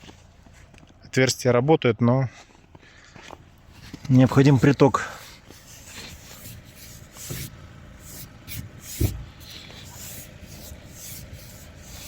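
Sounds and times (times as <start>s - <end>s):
scraping snow off car grille: 3.7s - 12.0s
dull thump: 8.5s - 9.5s.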